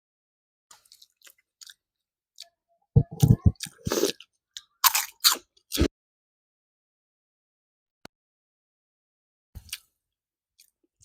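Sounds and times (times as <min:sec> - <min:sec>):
person chewing: 0:00.8 - 0:01.8, 0:02.4 - 0:05.9, 0:09.6 - 0:09.9.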